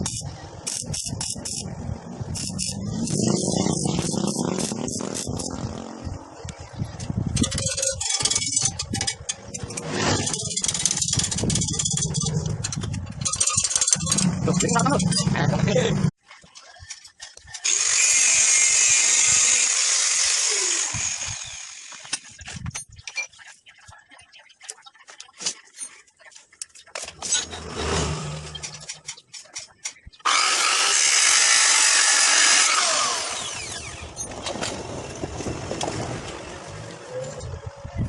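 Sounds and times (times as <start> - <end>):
handheld power tool running: 17.6 - 22.1, 30.3 - 34.2.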